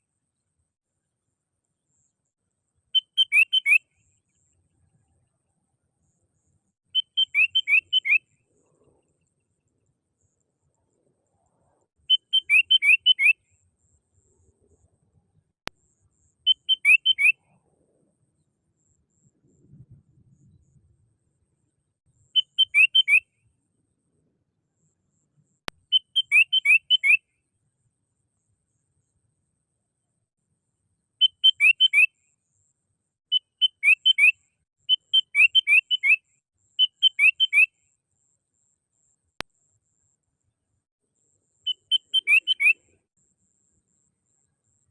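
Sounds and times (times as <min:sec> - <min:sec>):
bird song chirps and whistles: 0:02.9 - 0:04.2, 0:06.1 - 0:08.4, 0:12.0 - 0:13.4, 0:16.2 - 0:17.6, 0:22.2 - 0:23.4, 0:25.9 - 0:27.3, 0:31.2 - 0:32.2, 0:33.3 - 0:37.8, 0:41.6 - 0:43.0
bulbul calling: 0:03.0 - 0:03.9, 0:06.9 - 0:09.1, 0:12.0 - 0:13.4, 0:16.4 - 0:17.6, 0:22.3 - 0:23.3, 0:25.8 - 0:27.3, 0:31.2 - 0:32.1, 0:33.3 - 0:36.2, 0:36.8 - 0:37.7, 0:41.7 - 0:43.0.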